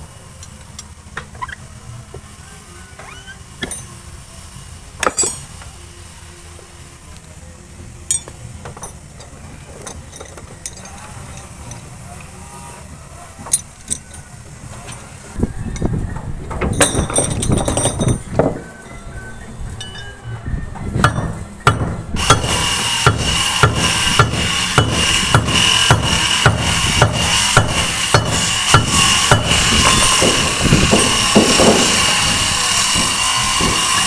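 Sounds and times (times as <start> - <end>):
knocks and clinks: 3.6 - 4.0, 5.0 - 5.6, 8.1 - 9.0, 16.5 - 18.9, 19.8 - 20.3
rumbling and knocking: 15.4 - 18.8, 20.6 - 34.0.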